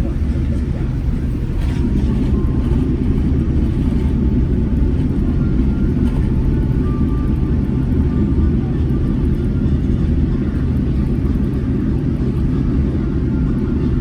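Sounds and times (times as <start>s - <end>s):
aircraft engines rumbling: 0.0s - 14.0s.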